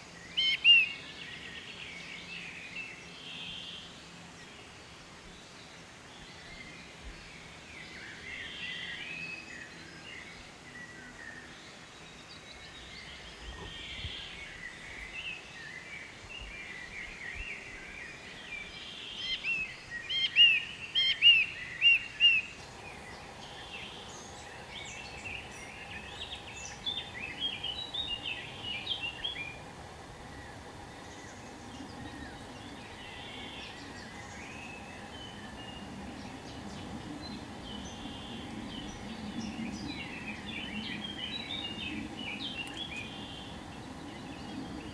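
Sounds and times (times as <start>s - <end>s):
background hiss: 22.4s - 44.9s
faint steady hum: 22.6s - 44.9s
wild birds calling and chirping: 22.6s - 44.9s.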